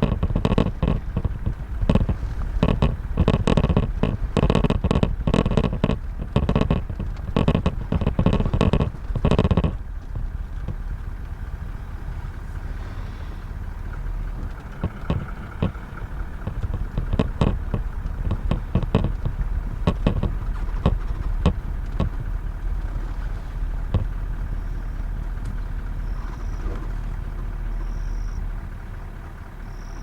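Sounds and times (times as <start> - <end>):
sharp clicks and knocks: 0.0 - 11.8, 13.9 - 26.9
vehicle engine idling: 0.0 - 30.0.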